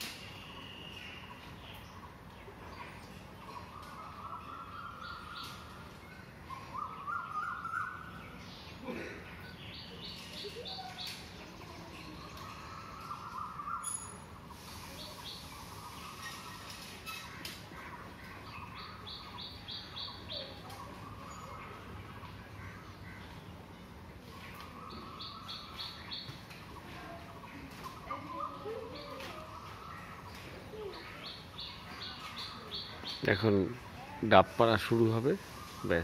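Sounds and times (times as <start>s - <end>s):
birds calling short high notes: 0.0s - 2.1s, 12.2s - 22.0s
lower stepped bird calls: 12.1s - 36.0s.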